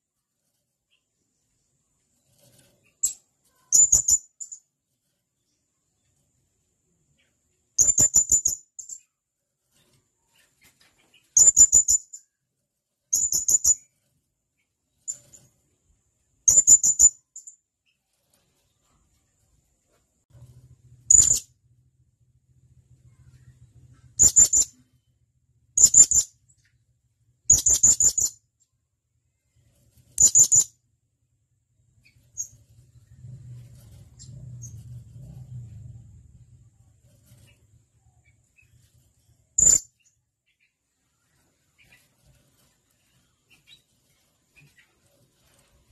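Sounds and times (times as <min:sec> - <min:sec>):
faint chirp: 0:00.0 - 0:19.6, 0:20.4 - 0:21.6, 0:22.3 - 0:30.9, 0:31.7 - 0:45.9
low hum: 0:18.8 - 0:27.5, 0:28.4 - 0:45.9.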